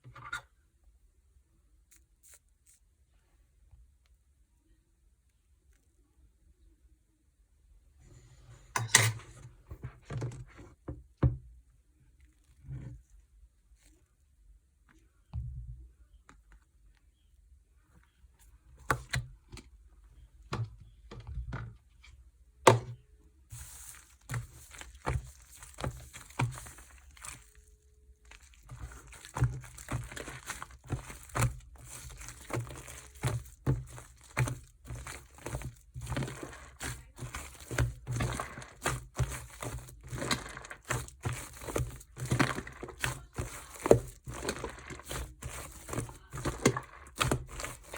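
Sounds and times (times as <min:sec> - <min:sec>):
slime squishing by hand: 0:22.6 - 0:47.9.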